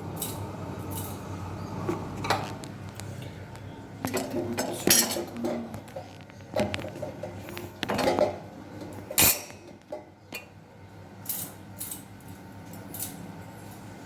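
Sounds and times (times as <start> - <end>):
dishes and utensils clinking: 4.0 - 10.5.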